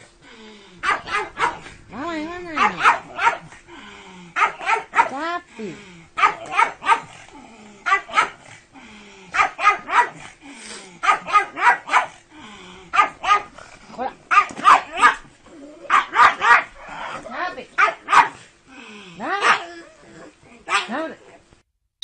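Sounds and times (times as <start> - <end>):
dog barking: 0.8 - 1.7, 2.5 - 3.5, 4.4 - 5.2, 6.2 - 7.2, 7.8 - 8.4, 9.3 - 10.2, 11.0 - 12.2, 12.9 - 13.6, 14.3 - 15.2, 15.9 - 16.8, 17.8 - 18.4, 19.3 - 19.7, 20.7 - 21.1.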